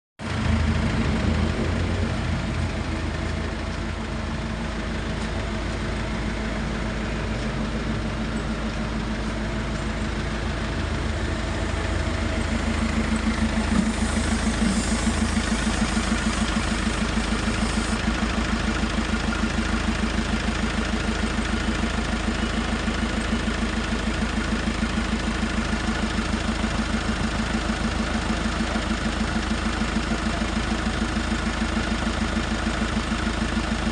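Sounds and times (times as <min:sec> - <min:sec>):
engine idling: 0:00.2 - 0:33.9.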